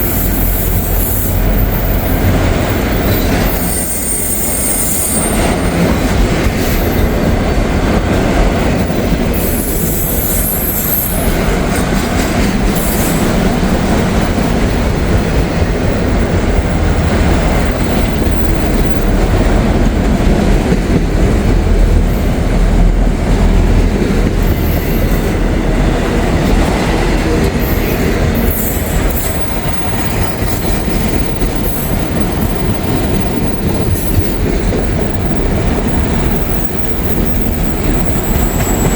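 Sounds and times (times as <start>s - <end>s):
train wheels rumbling on rails: 0.0s - 38.9s
high-pitched wheel squeals: 0.1s - 5.8s, 9.4s - 11.5s, 35.2s - 38.9s.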